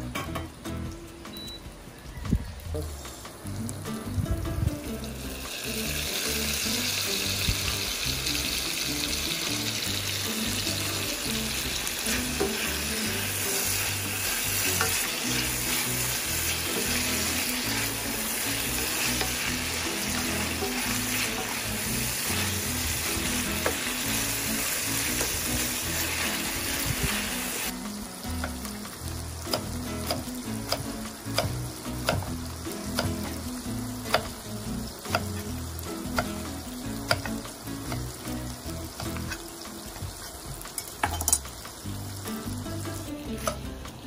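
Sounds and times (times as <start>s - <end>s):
vegetables sizzling in oil: 0.0s - 44.0s
spatula tapping pan: 29.5s - 35.4s, 36.1s - 38.2s.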